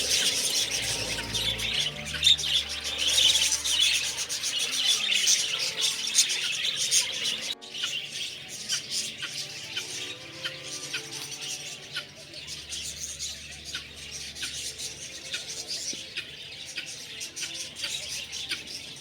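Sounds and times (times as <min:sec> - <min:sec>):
many birds chirping: 0:00.0 - 0:19.0.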